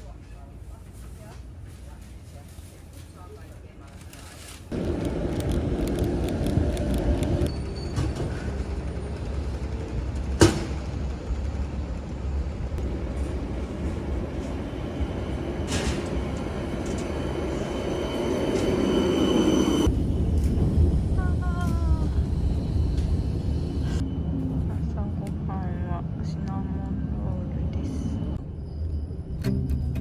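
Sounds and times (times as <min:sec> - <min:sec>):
rail vehicle rumble: 0:00.0 - 0:30.0
faint high squeal: 0:07.5 - 0:08.6.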